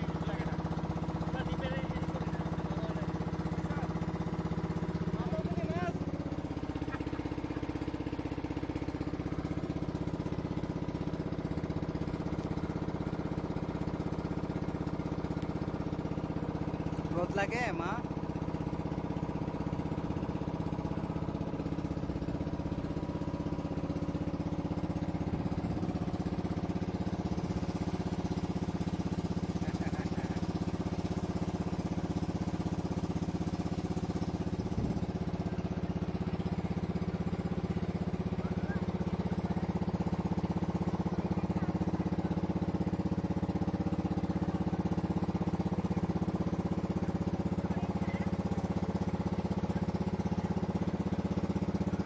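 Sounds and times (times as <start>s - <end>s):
boat engine drone: 0.0s - 52.0s.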